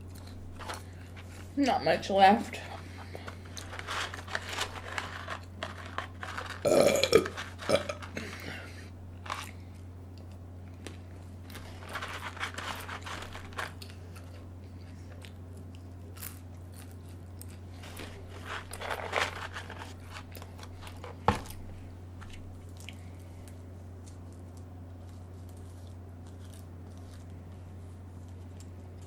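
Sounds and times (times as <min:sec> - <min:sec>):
chewing and crunching: 0:00.0 - 0:01.6, 0:02.6 - 0:21.2, 0:21.8 - 0:29.0
steady low hum: 0:00.0 - 0:29.0
paper carton crinkling: 0:00.2 - 0:01.5, 0:02.6 - 0:09.6, 0:11.4 - 0:14.5, 0:16.1 - 0:22.3.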